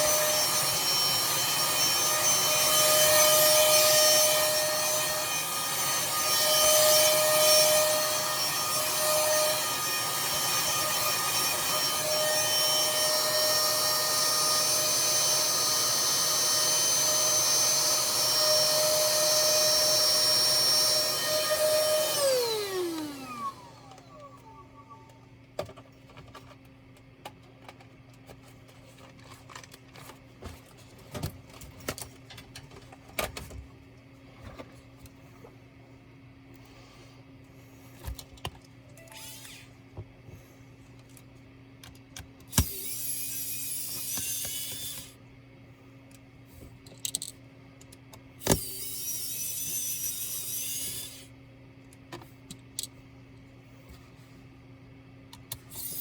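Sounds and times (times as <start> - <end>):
electric screwdriver motor whining: 0.0 - 24.4, 39.0 - 39.7, 42.5 - 45.1, 48.4 - 51.3, 55.7 - 56.0
clicks and taps of small parts: 46.8 - 48.7.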